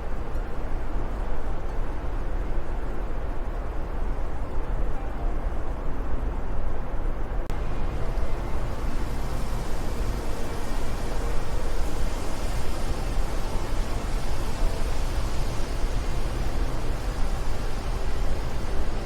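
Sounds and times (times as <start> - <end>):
wind blowing: 5.4 - 19.0.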